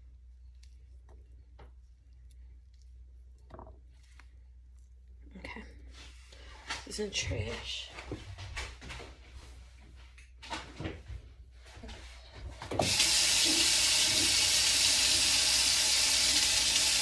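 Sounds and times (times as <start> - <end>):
tap water running into sink: 12.6 - 17.0.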